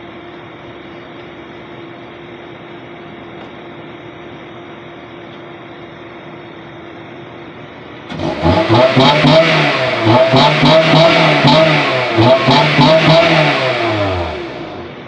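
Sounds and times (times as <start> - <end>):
car exhaust idling: 8.1 - 15.0.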